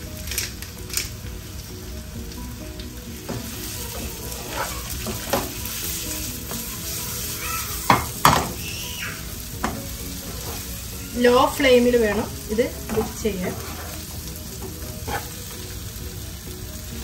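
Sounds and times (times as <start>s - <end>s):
food sizzling in a frying pan: 0.0s - 17.0s
wooden spoon scraping a pan: 3.3s - 7.3s, 9.6s - 15.5s.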